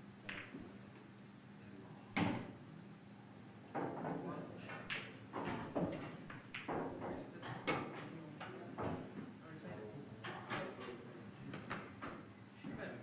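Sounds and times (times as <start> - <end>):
pool balls knocking and clattering: 0.2 - 0.7, 3.7 - 9.3, 10.2 - 12.8
pool balls striking: 0.3 - 0.7, 3.7 - 8.0.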